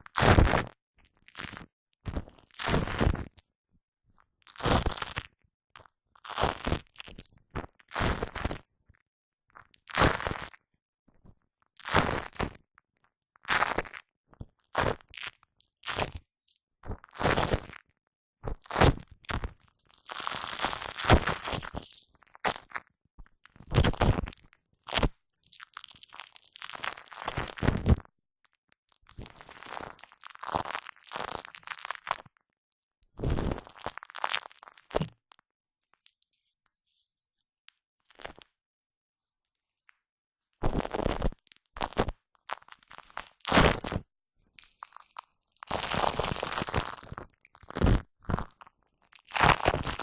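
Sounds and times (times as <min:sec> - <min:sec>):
shaving foam squishing: 0:44.6 - 0:48.6, 0:49.2 - 0:50.0.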